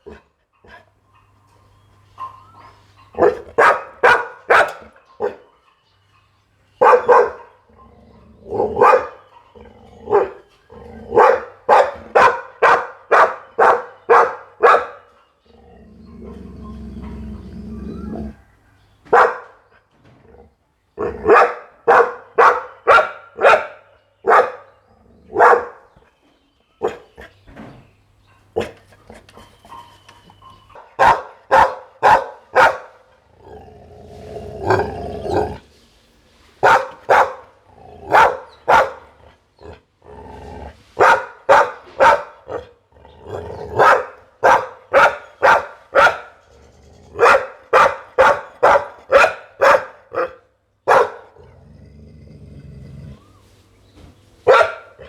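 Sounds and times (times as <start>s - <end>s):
dog barking loudly: 3.0s - 5.4s, 6.8s - 7.6s, 8.6s - 9.3s, 10.1s - 10.4s, 11.1s - 15.1s, 19.1s - 19.6s, 21.0s - 26.0s, 30.8s - 33.1s, 36.6s - 39.2s, 41.0s - 46.4s, 47.2s - 51.4s, 54.4s - 55.0s.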